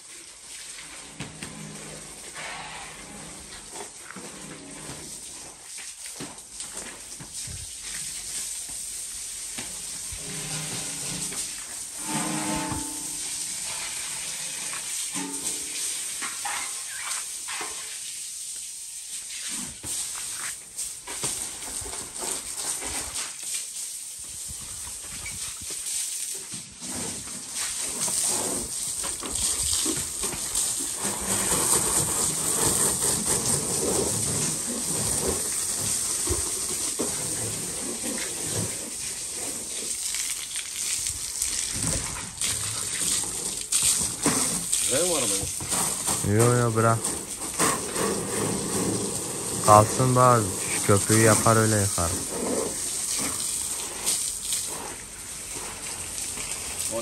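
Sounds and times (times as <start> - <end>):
food sizzling in a pan: 7.4 - 21.0.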